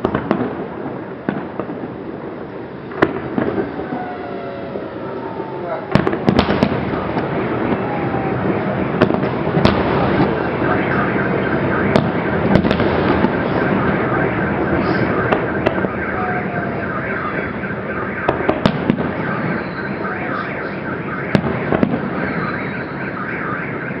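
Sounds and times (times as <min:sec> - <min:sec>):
fireworks banging: 0:00.0 - 0:16.5, 0:17.3 - 0:19.6
wavering din: 0:03.5 - 0:08.9.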